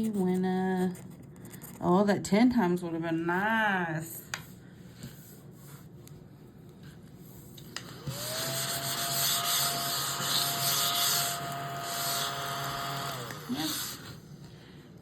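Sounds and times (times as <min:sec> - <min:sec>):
small electric motor spinning: 0:07.9 - 0:14.2.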